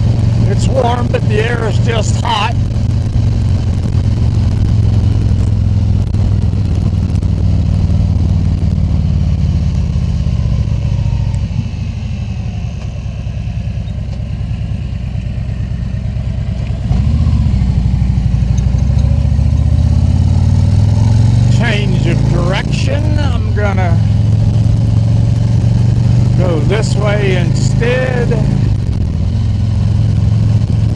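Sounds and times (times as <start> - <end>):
motorcycle engine running: 0.0 - 30.9
wind noise: 28.4 - 30.9.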